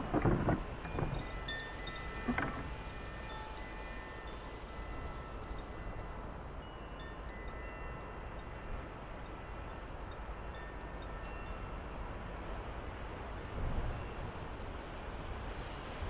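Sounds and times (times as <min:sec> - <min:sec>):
wind chimes ringing: 0:00.0 - 0:14.3.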